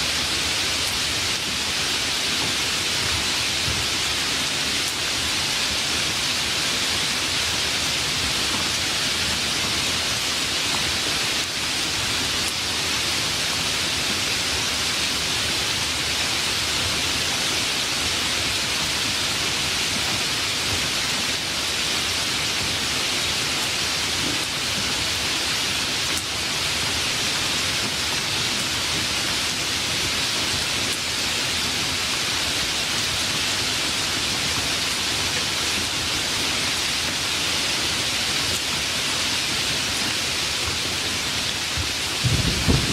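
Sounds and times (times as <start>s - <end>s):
steady rain: 0.0s - 42.9s.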